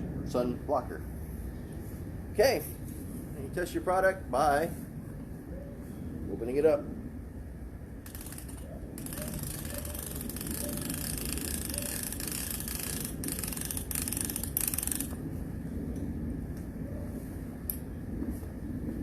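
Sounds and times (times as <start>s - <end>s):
mechanical scraping and clicking: 8.1s - 15.2s.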